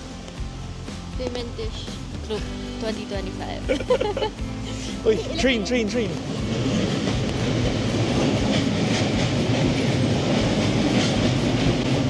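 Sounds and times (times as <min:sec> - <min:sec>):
train rumbling past: 0:00.0 - 0:12.0
wheels clacking over rails: 0:05.7 - 0:12.0.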